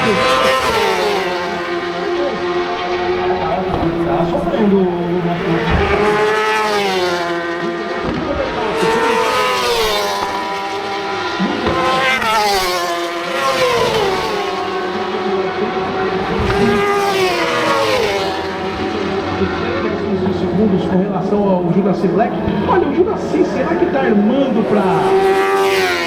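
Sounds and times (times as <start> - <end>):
racing motorcycle engines revving: 0.0 - 26.0.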